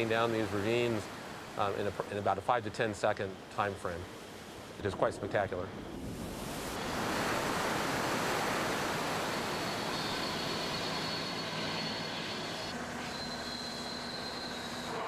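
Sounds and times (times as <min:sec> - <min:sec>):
water rushing down rocks: 0:00.0 - 0:03.0.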